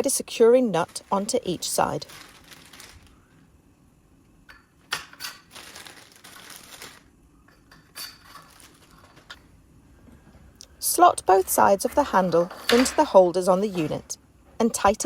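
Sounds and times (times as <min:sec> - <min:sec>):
plastic packaging crinkling: 0:00.3 - 0:03.5, 0:04.9 - 0:07.2, 0:08.1 - 0:09.4.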